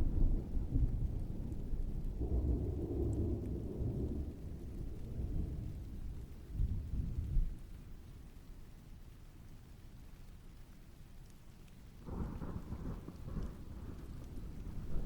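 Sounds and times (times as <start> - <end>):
distant thunder rumbling: 0.0 - 7.7, 12.0 - 15.0
faint rain: 0.0 - 15.0.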